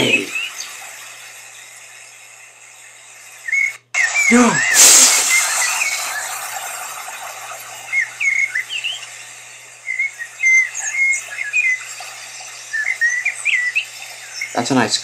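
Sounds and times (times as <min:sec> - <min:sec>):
small birds chirping: 0:00.0 - 0:15.0
explosion: 0:04.7 - 0:07.8.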